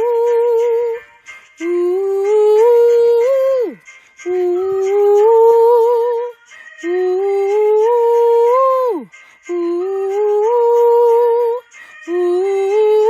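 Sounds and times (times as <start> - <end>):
person singing ooh phrases: 0.0 - 1.0, 1.6 - 13.0.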